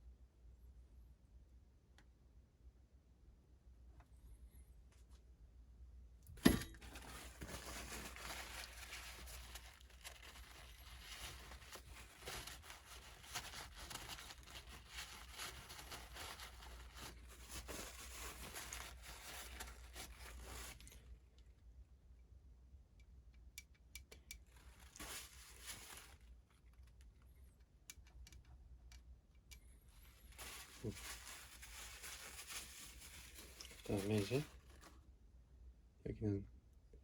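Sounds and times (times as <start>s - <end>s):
hands rustling and scraping: 6.8s - 21.0s, 24.6s - 26.3s, 29.9s - 35.0s.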